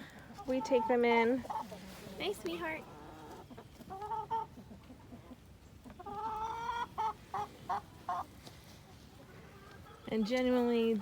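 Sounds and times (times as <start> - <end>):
chicken clucks: 0.2 - 11.0
chicken calling: 6.0 - 8.3.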